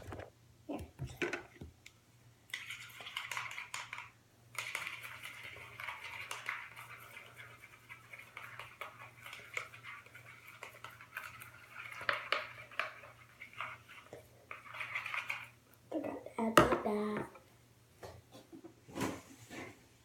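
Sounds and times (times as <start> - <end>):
paintbrush stirring paste in a bowl: 2.5 - 17.4.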